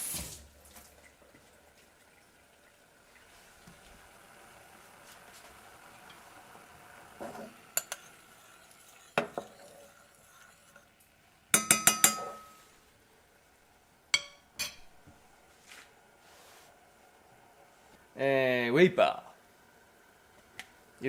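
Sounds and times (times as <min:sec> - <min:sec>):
utensils clinking on pot: 0:07.2 - 0:10.9, 0:11.6 - 0:12.7, 0:14.2 - 0:14.9.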